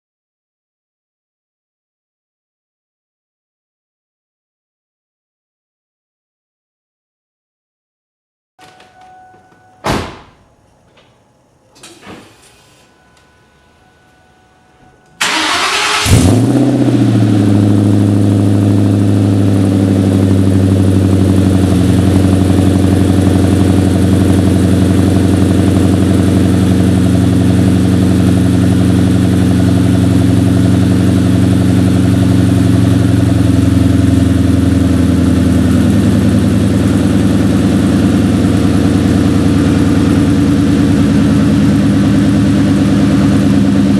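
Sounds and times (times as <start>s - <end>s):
car engine starting and idling: 13.9s - 43.9s.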